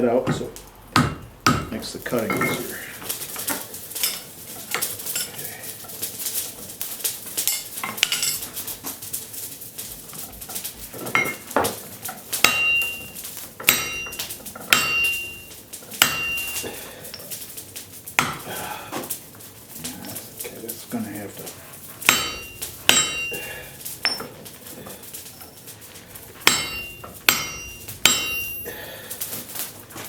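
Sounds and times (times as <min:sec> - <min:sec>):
hammer striking steel on anvil: 0:00.2 - 0:02.7, 0:12.4 - 0:17.2, 0:18.2 - 0:18.5, 0:22.0 - 0:24.3, 0:26.3 - 0:28.8.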